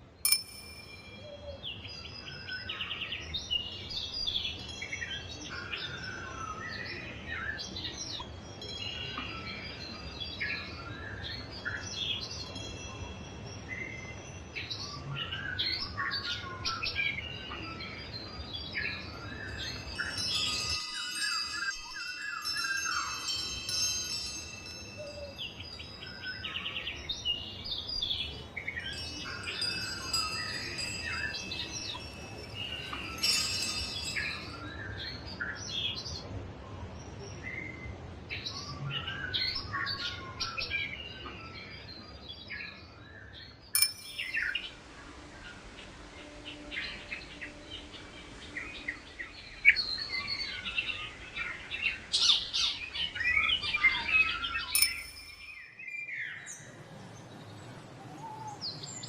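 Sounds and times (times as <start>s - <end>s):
high ringing chimes: 0.3s - 1.6s, 19.2s - 34.9s, 43.8s - 44.8s, 54.0s - 55.9s
birds chirping and singing: 0.4s - 36.0s, 45.6s - 59.0s.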